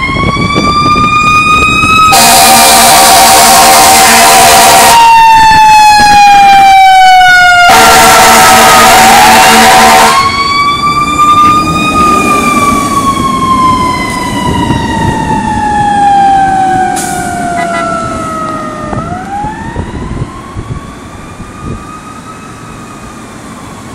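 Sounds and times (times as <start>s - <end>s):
fire engine siren wailing: 0.0s - 23.9s
horn blasts: 2.0s - 5.1s, 6.0s - 10.3s, 11.2s - 11.7s.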